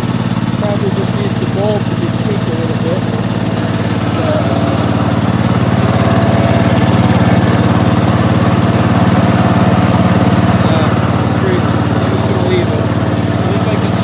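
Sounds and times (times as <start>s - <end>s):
walk-behind tractor engine idling: 0.0s - 14.0s.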